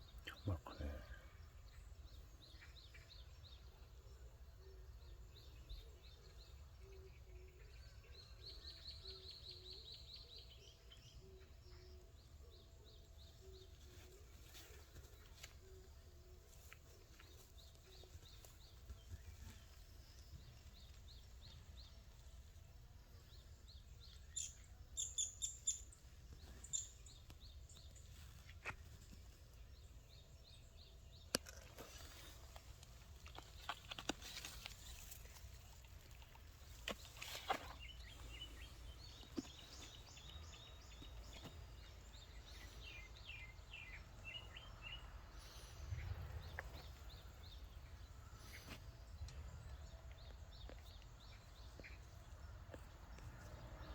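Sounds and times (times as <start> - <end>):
distant birds chirping: 0.0 - 53.9.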